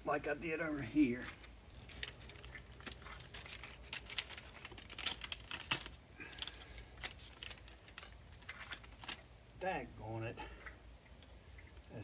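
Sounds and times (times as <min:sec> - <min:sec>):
tape crinkling: 0:00.7 - 0:09.3.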